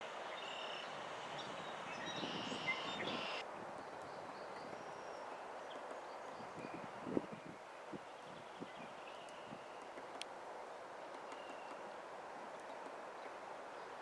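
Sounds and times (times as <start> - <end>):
birds chirping: 0.0 - 10.1.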